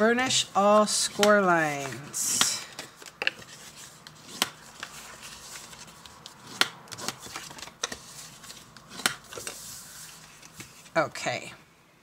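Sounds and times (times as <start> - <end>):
paper rubbing and rustling: 3.4 - 11.0.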